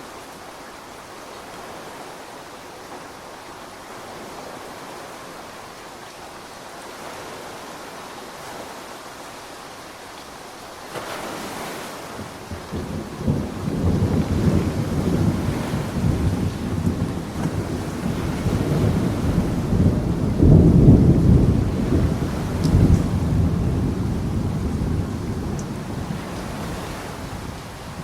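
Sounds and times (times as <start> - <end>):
steady rain: 0.0 - 28.0
thunder crack and rumble: 12.2 - 28.0.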